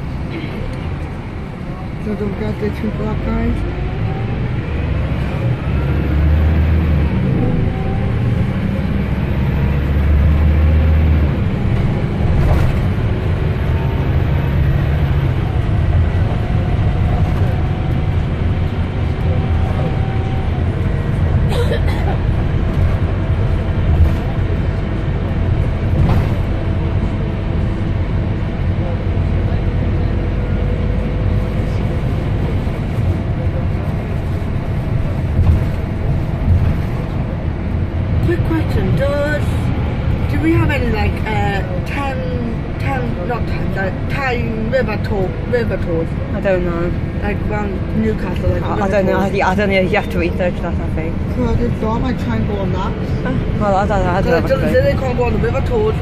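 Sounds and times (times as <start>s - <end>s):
bus diesel engine droning: 0.0s - 56.0s
faint drivetrain whine: 0.0s - 56.0s.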